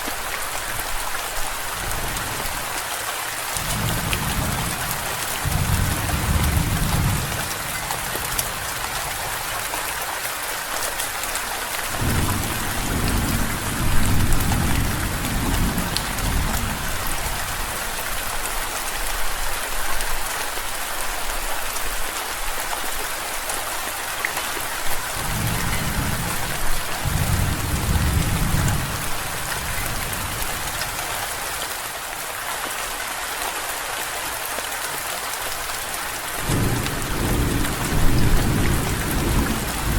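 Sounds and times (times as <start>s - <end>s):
heavy rain falling: 0.0s - 39.9s
low thunder rumbling: 3.6s - 9.5s, 12.0s - 17.0s, 25.2s - 30.9s.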